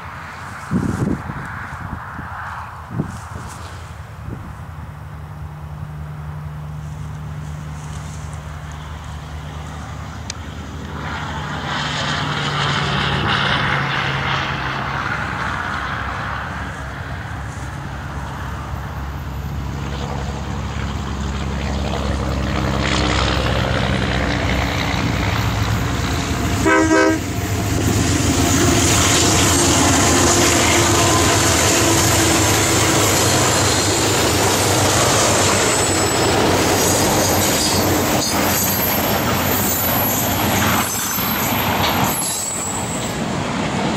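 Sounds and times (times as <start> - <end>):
diesel locomotive engine drone: 0.0 - 43.9
train rolling noise: 0.0 - 43.9
train horn blast: 26.6 - 27.5, 29.3 - 33.3
wheels squealing: 29.4 - 43.2.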